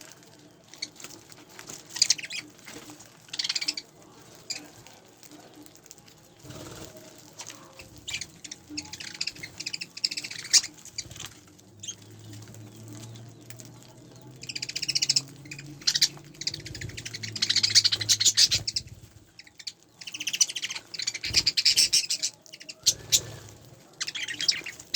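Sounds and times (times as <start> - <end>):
budgerigars chirping: 1.8 - 2.6, 3.3 - 3.9, 7.9 - 13.4, 14.1 - 23.4, 24.0 - 24.9.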